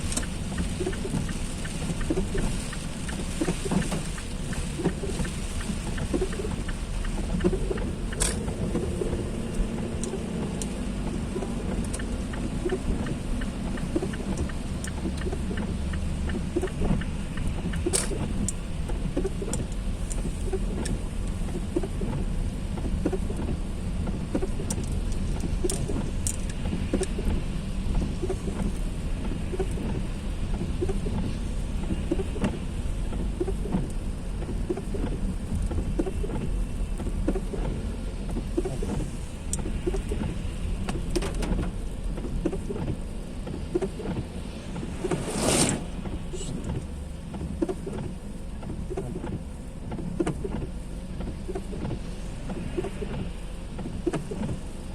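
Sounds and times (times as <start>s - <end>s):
heavy rain falling: 0.0s - 48.5s
loud whoosh: 44.3s - 46.7s.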